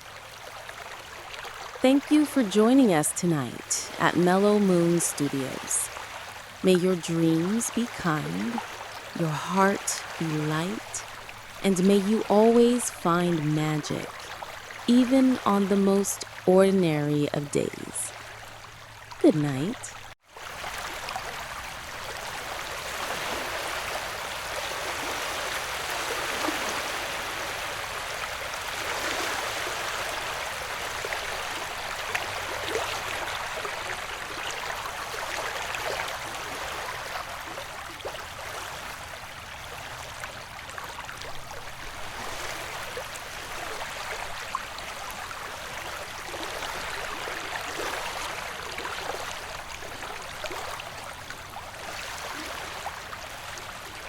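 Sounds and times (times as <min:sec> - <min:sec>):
ocean waves washing: 0:01.8 - 0:18.4.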